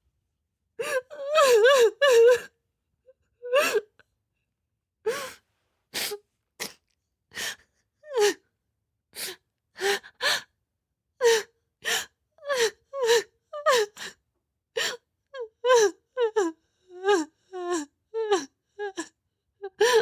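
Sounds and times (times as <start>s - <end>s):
person crying in sobs: 0.8s - 2.5s.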